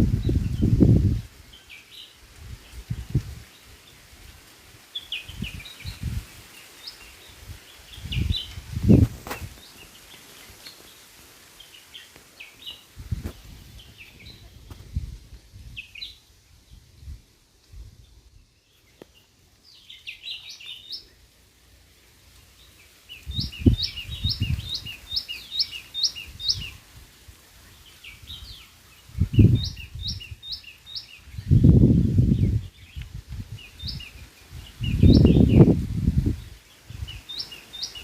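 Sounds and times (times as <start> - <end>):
bird whistling song: 23.1 - 26.7, 29.3 - 31.6, 34.8 - 35.7.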